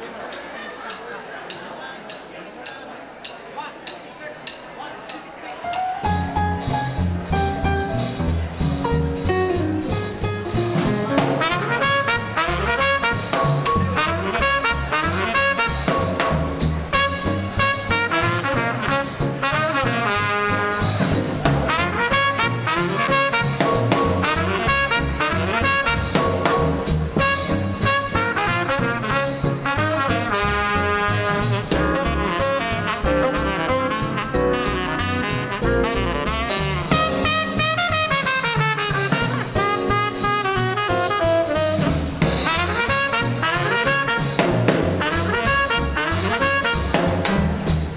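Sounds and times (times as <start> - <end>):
swing band playing: 0.0 - 47.9
trumpet and saxophone lines: 9.4 - 47.3.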